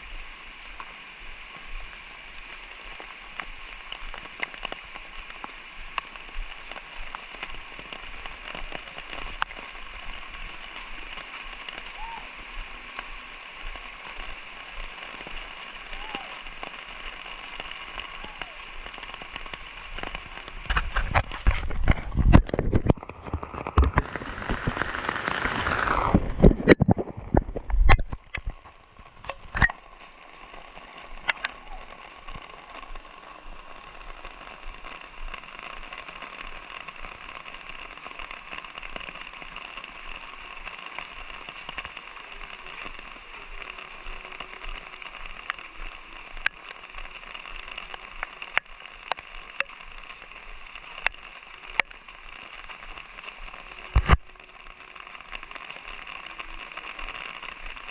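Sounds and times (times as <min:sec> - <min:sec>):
light rain falling: 0:00.0 - 0:57.9
raindrops ticking on surfaces: 0:00.0 - 0:57.9
rushing noise falling in pitch: 0:15.4 - 0:27.7.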